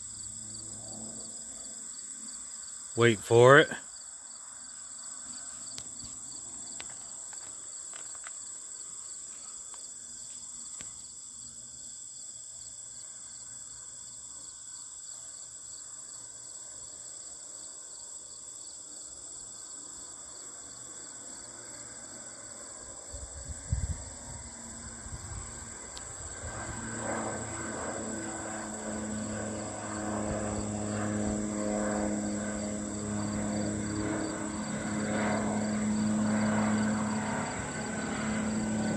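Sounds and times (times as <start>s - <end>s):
airplane engine drone: 0.0s - 11.7s, 19.0s - 38.9s
trilling insects: 0.0s - 38.9s
wind rumble on microphone: 23.1s - 27.9s.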